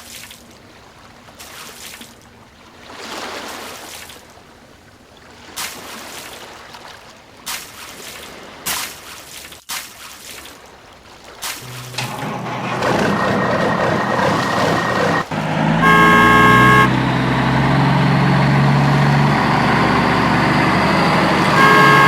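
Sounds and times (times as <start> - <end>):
water splashing and trickling: 0.0 - 11.9, 16.9 - 22.0.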